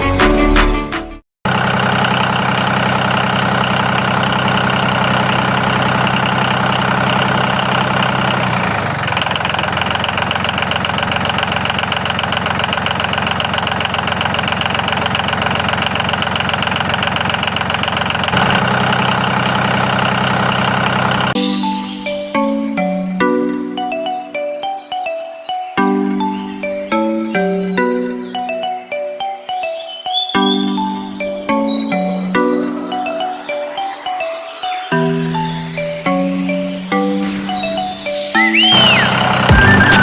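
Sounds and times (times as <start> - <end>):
tractor engine idling with knocking: 1.5 - 21.4, 38.7 - 40.0.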